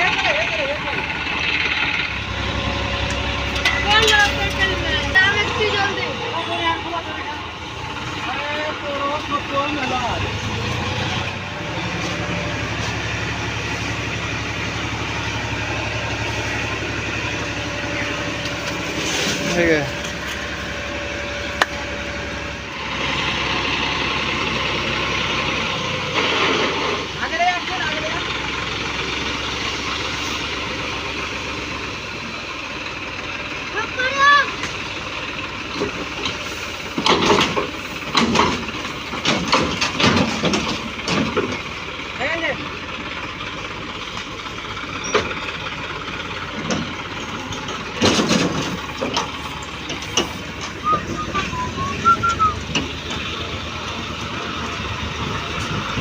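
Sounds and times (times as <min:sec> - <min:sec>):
tractor diesel engine running: 0:00.0 - 0:56.0
people calling out: 0:50.8 - 0:52.7.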